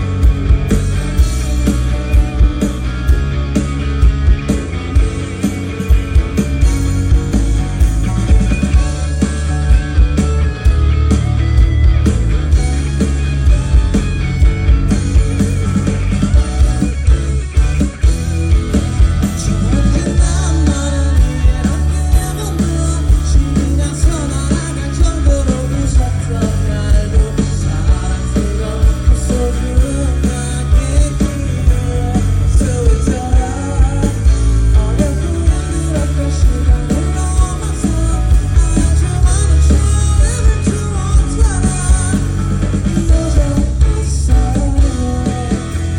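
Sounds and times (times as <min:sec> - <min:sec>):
live pop-rock band: 0:00.0 - 0:45.9
person singing: 0:19.2 - 0:45.9.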